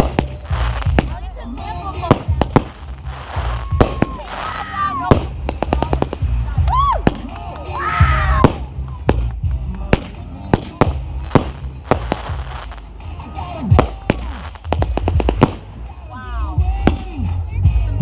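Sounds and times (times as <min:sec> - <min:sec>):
fireworks bangs: 0:00.0 - 0:01.3, 0:02.0 - 0:06.4, 0:08.4 - 0:12.9, 0:13.7 - 0:15.9
music with bass line: 0:00.0 - 0:18.0.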